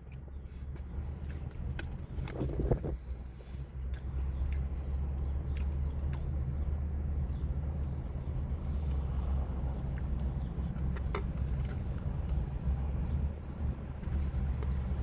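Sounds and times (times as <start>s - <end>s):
low rumble: 2.0s - 3.9s.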